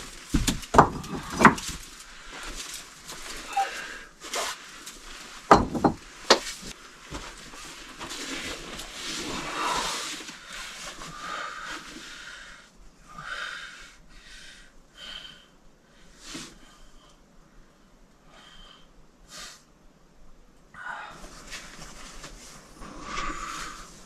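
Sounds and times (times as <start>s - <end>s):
sharp knocks: 5.5s - 6.4s
person breathing in puffs: 22.8s - 24.0s.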